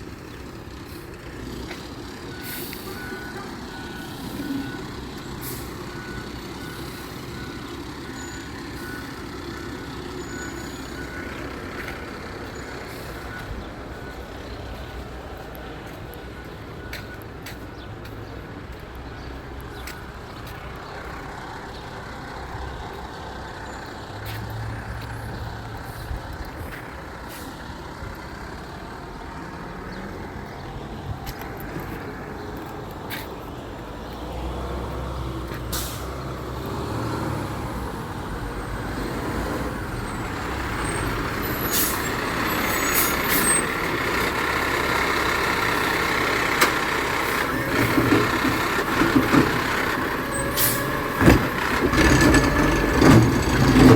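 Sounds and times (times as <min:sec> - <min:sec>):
garbage truck engine running: 0:35.7 - 0:53.9.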